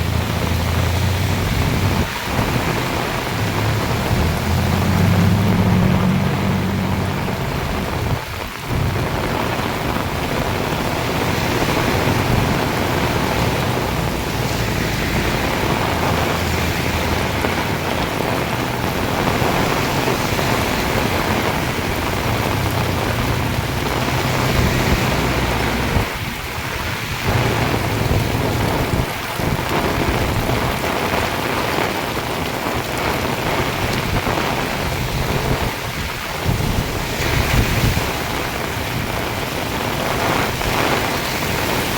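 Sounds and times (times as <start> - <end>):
deep low rumble: 0.0 - 30.8
heavy rain pouring: 0.0 - 41.9.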